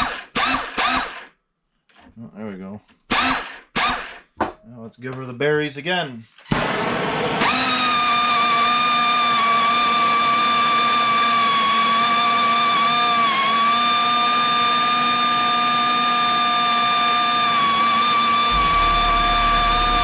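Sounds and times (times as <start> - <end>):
pneumatic angle grinder whine: 0.0 - 1.3, 3.1 - 4.2, 6.5 - 20.0.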